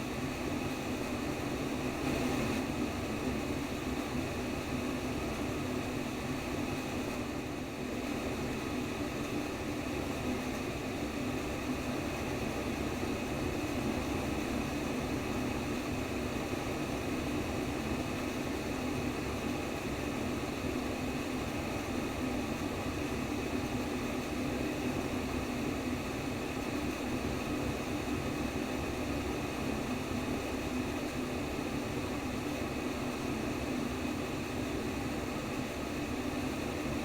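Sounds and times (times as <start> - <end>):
steady white noise hiss: 0.0 - 37.0.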